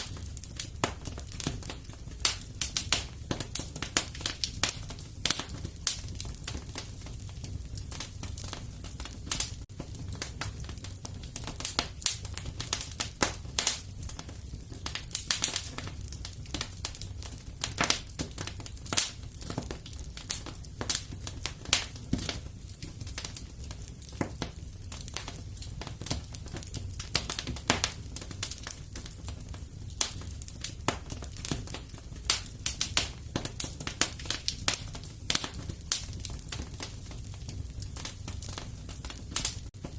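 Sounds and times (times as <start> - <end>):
burning logs rumble: 0.0 - 39.9
wood fire crackling and popping: 0.0 - 39.9.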